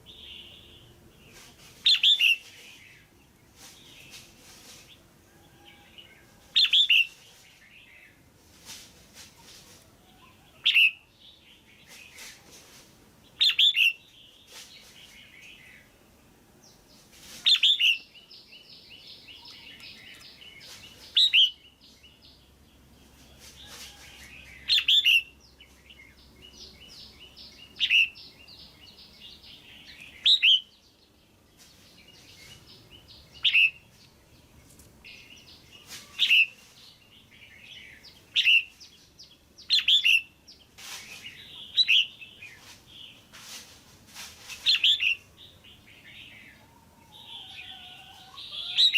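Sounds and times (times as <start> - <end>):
bird sharp calls: 32.2 - 33.8.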